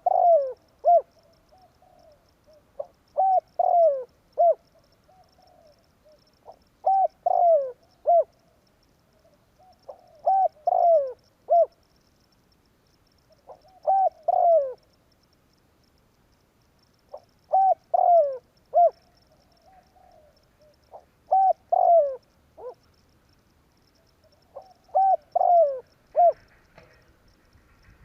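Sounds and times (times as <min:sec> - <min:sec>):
dove cooing: 0:00.0 - 0:08.4, 0:09.2 - 0:11.8, 0:13.3 - 0:14.8, 0:17.1 - 0:22.9, 0:23.9 - 0:27.0.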